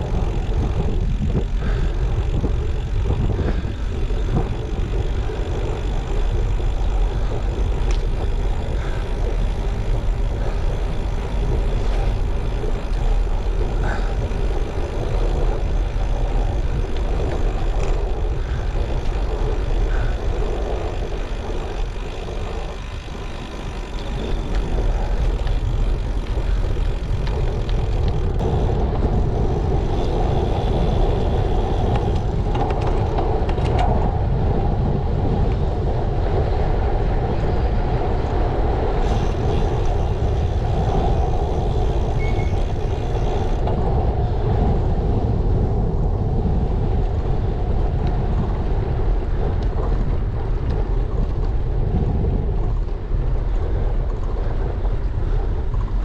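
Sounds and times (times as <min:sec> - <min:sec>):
bicycle tyre road noise: 0:00.0 - 0:56.0
wind rumble on microphone: 0:00.0 - 0:56.0.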